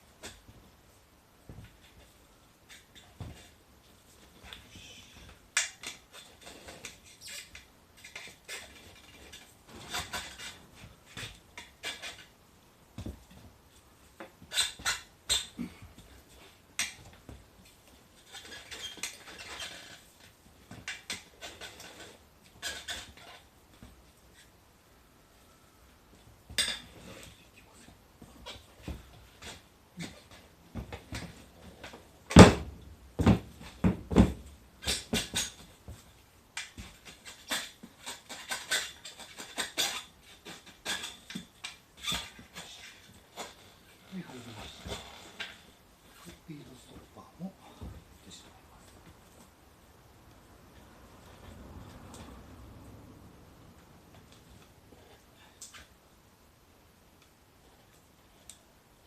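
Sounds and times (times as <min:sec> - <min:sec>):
rubber squeaking: 0:04.4 - 0:12.3, 0:14.4 - 0:17.4, 0:18.2 - 0:24.6, 0:36.8 - 0:47.1
metal tyre levers scraping rim: 0:04.5 - 0:12.3, 0:14.5 - 0:15.6, 0:18.2 - 0:23.5, 0:36.6 - 0:46.4.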